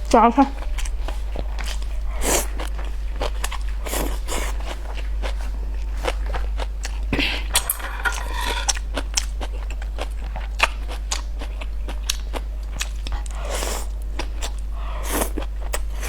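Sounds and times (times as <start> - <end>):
steady low hum: 0.0 - 16.0
person chewing and crunching food: 0.6 - 16.0.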